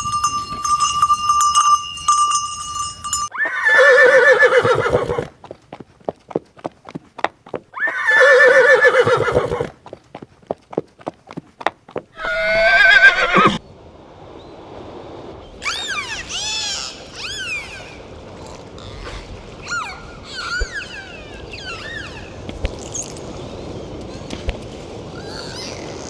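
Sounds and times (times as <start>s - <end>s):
horse whinnying: 3.3s - 5.3s, 7.8s - 9.7s, 12.2s - 13.6s
hoof clicks: 4.6s - 8.0s, 9.3s - 12.3s.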